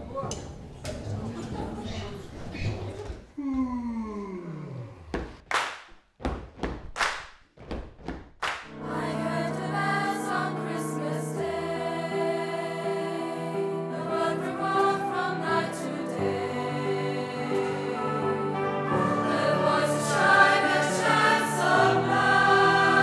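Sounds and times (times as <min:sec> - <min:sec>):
choir singing held chords: 0:08.7 - 0:23.0
instrumental ensemble accompanying: 0:13.9 - 0:23.0.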